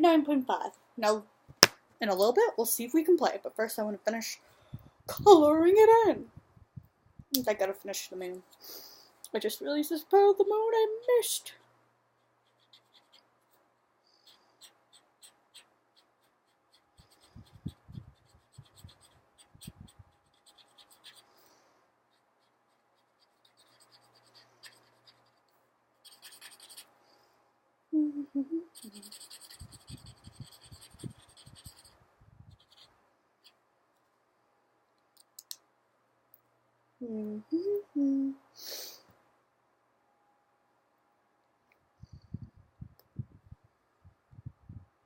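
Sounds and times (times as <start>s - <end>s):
marker scratching on paper: 12.2s - 13.6s, 14.2s - 21.3s, 22.1s - 26.9s, 28.7s - 33.6s
person humming: 27.9s - 29.2s, 37.0s - 38.4s.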